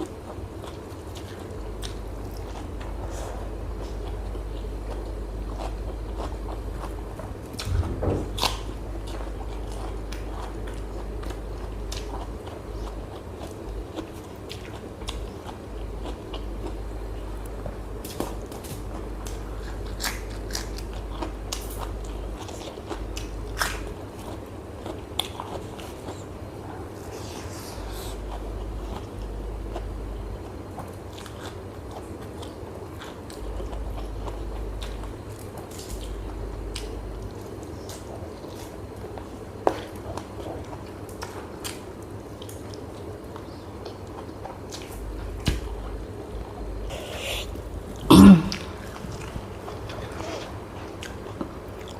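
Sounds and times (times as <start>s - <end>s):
person chewing food: 0.0s - 51.9s
person biting and chewing food: 0.6s - 13.0s, 18.0s - 21.8s, 46.8s - 51.2s.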